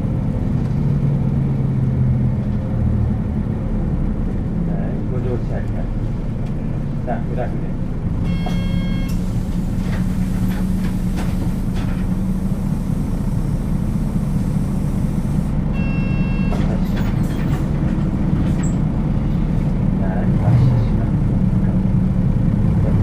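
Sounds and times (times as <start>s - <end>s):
diesel bus engine drone: 0.0s - 23.0s
road noise: 0.0s - 23.0s
short electronic tone: 8.2s - 9.2s, 15.8s - 16.6s.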